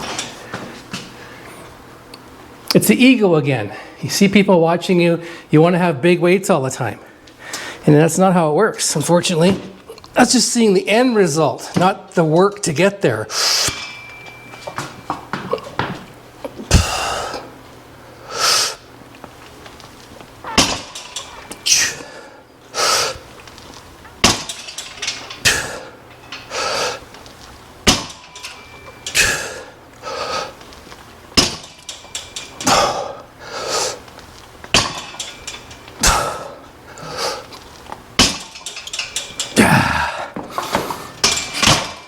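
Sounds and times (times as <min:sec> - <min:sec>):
person breathing hard: 0:16.7 - 0:17.5, 0:39.7 - 0:41.2
barbell clanking onto rack pins: 0:20.4 - 0:22.2, 0:24.2 - 0:27.0, 0:27.8 - 0:29.7, 0:31.3 - 0:33.1, 0:34.6 - 0:36.5, 0:38.2 - 0:39.7, 0:40.4 - 0:42.0.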